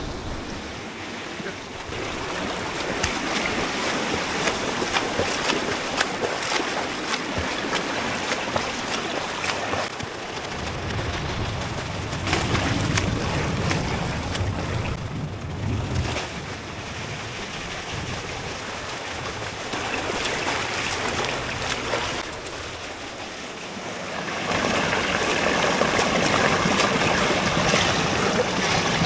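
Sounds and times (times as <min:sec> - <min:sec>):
wind rumbling on microphone: 0:00.0 - 0:06.3, 0:09.8 - 0:23.6
swimmer splashing water: 0:00.0 - 0:29.0.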